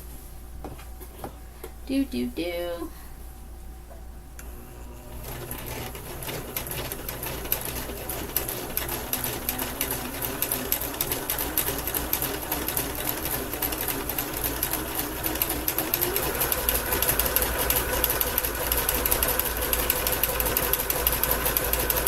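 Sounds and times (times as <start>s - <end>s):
sewing machine motor hum: 4.4s - 22.0s.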